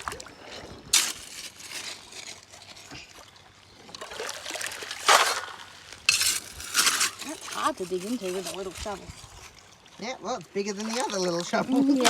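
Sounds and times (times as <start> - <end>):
hand shovel scraping gravelly dirt: 0.0 - 3.1, 4.8 - 9.6.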